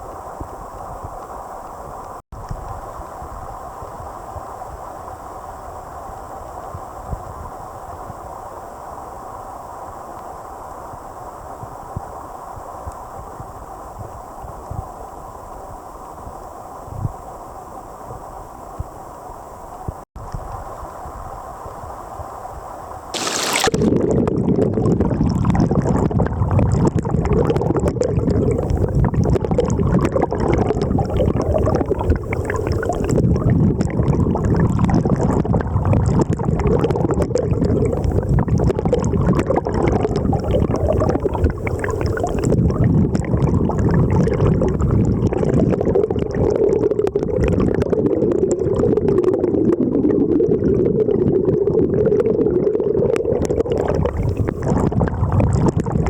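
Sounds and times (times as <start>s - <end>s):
river rushing over rocks: 23.2s - 23.9s.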